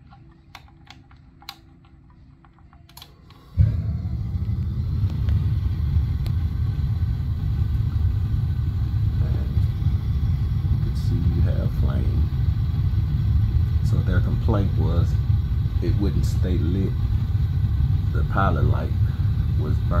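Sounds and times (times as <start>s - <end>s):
gas burner igniting and rumbling: 0.0s - 20.0s
gas control knob clicks: 0.1s - 3.4s.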